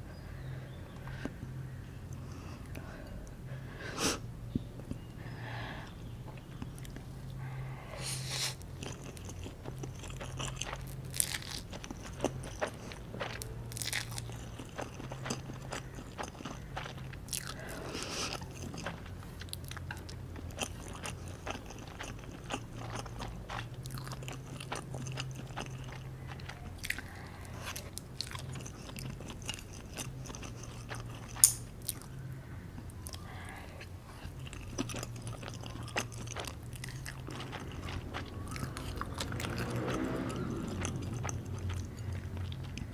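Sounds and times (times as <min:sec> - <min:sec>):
person chewing crunchily: 0:08.2 - 0:32.2, 0:32.8 - 0:42.9.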